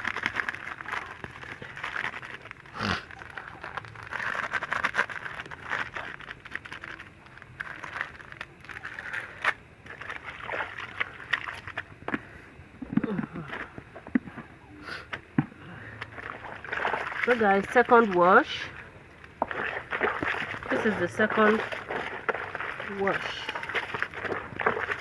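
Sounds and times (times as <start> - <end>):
wet clothes scrubbed in water: 0.0 - 25.0
water splashing: 8.9 - 14.1, 15.9 - 25.0.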